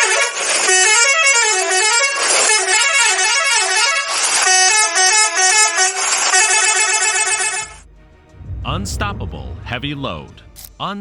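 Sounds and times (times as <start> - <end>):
musical vehicle horn melody: 0.7 - 7.8.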